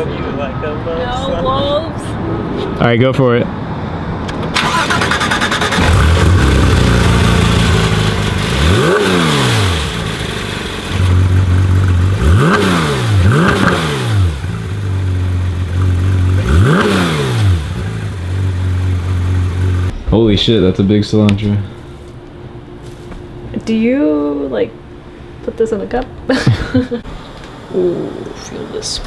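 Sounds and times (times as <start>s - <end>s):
car engine idling and revving: 3.6s - 20.0s.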